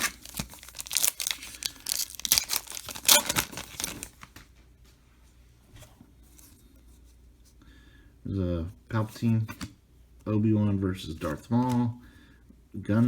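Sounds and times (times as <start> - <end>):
foil wrapper tearing and crinkling: 0.0 - 4.3
faint card handling: 11.1 - 12.0.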